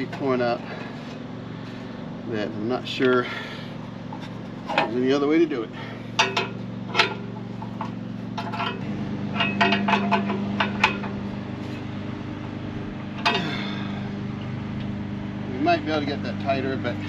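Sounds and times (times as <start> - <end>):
lawnmower engine droning: 0.0 - 17.0.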